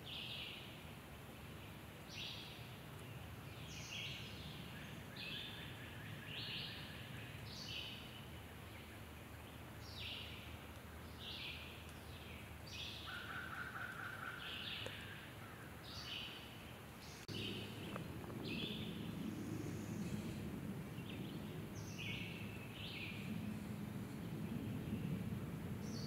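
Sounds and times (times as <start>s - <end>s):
low rumble: 17.2s - 26.0s.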